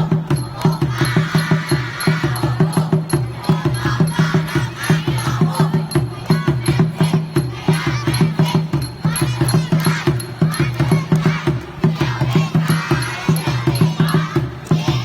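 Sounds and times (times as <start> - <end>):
quick steady drumbeat: 0.0 - 15.0
squad chanting and shouting: 0.0 - 15.0.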